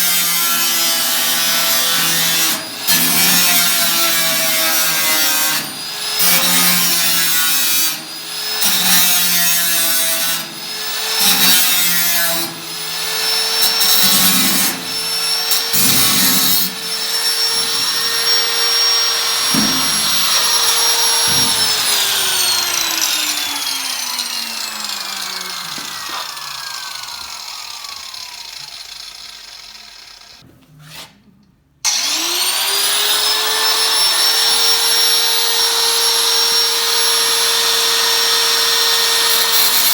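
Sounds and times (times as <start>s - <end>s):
power tool cutting sheet steel: 0.0s - 30.4s, 31.9s - 39.9s
electric power tool running: 12.4s - 30.4s, 31.9s - 39.9s.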